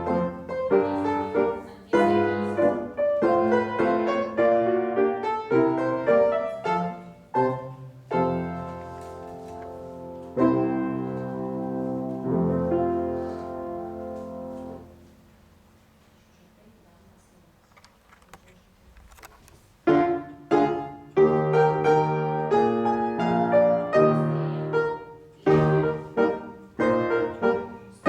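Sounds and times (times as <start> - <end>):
piano playing: 0.0 - 15.6, 19.8 - 28.0.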